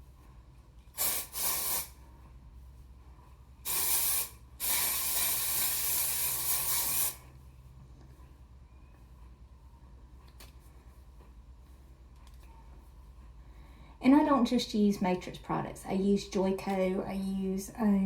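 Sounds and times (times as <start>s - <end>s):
hair spray hissing bursts: 0.9s - 2.0s, 3.6s - 7.2s.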